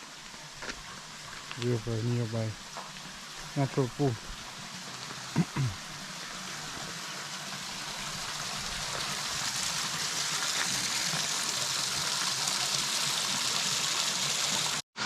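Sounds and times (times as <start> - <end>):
river water rushing into pool: 3.6 - 14.8.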